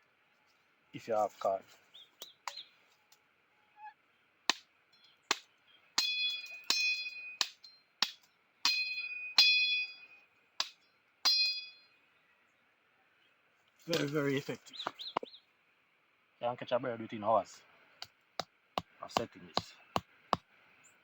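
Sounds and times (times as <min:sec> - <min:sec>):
metal tool striking with ring: 0:06.0 - 0:11.9.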